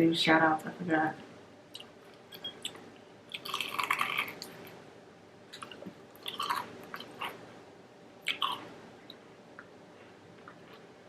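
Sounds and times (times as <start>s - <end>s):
person chewing food: 1.7s - 4.8s, 5.5s - 7.4s, 8.2s - 9.2s, 10.4s - 10.9s.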